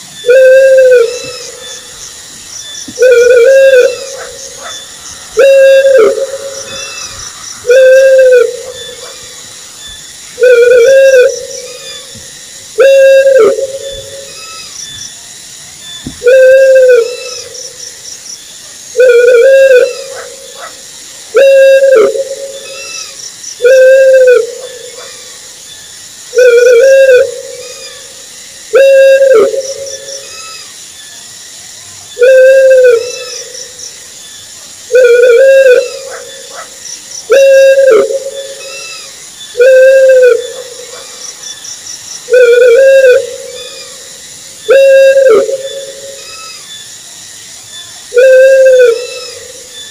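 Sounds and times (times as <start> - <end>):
owl hooting: 0.2 - 2.1, 2.9 - 14.8, 16.1 - 17.8, 19.0 - 25.4, 26.3 - 30.7, 32.2 - 33.8, 34.9 - 41.6, 42.2 - 46.7, 48.1 - 49.9.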